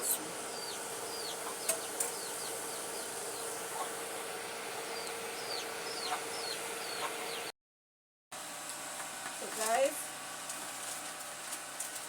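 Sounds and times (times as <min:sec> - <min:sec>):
small bird chirping: 0:00.2 - 0:04.0, 0:04.9 - 0:07.5.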